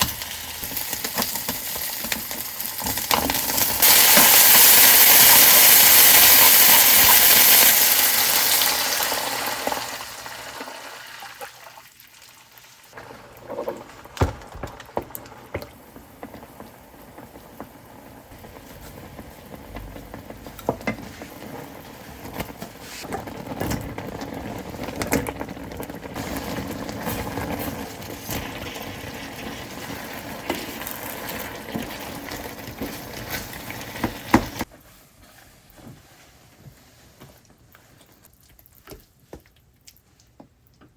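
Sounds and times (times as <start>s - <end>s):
loud hiss: 3.8s - 9.2s.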